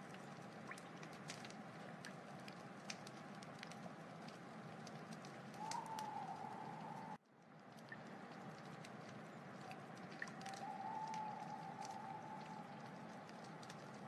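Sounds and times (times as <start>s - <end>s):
wood fire crackling and popping: 0.0s - 14.0s
wavering whistle-like hiss: 5.6s - 7.2s, 10.5s - 12.8s.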